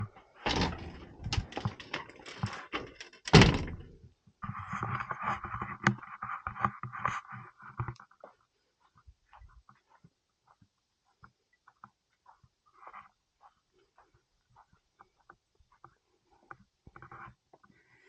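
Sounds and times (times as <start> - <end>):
knocks and thuds: 3.3 - 4.0.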